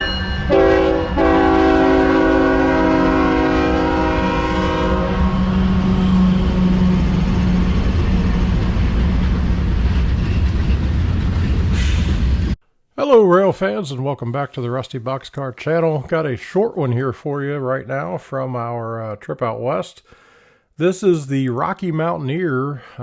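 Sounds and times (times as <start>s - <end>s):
locomotive horn blasts: 0.0s - 7.6s
locomotive engines rumbling: 0.0s - 12.6s
train rolling past: 0.0s - 12.6s.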